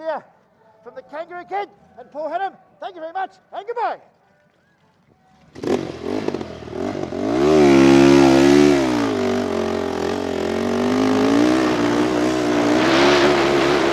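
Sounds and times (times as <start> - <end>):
vehicle engine revving: 5.5 - 13.9.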